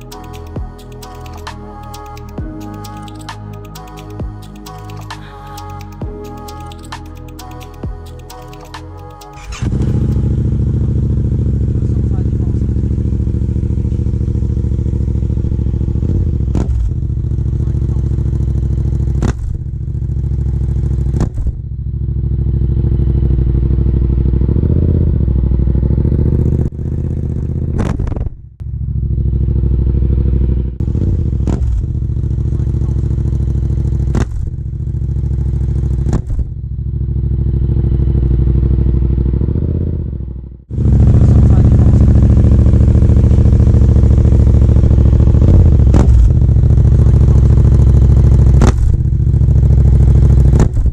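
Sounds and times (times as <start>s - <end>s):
sharp clicks: 0.0s - 10.2s
motorcycle engine at low revs: 0.0s - 50.9s.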